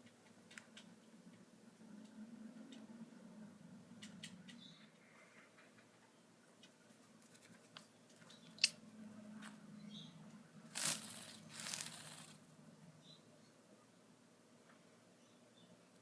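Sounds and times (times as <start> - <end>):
rustling tearing bursts: 10.7 - 12.4.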